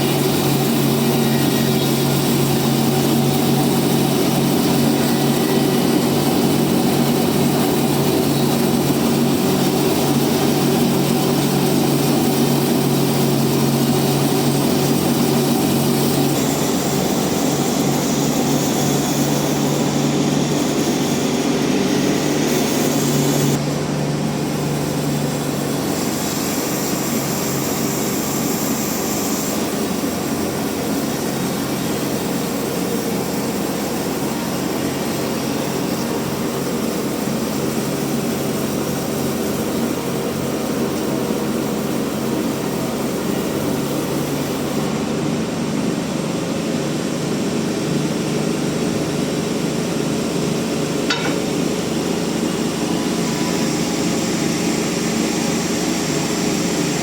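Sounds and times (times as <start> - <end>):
band saw cutting log: 0.0 - 23.6, 24.6 - 44.7.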